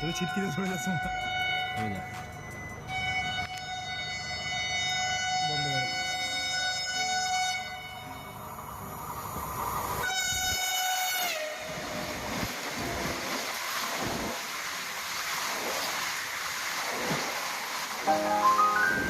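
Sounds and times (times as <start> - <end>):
train horn: 3.0 - 8.4, 10.0 - 12.2.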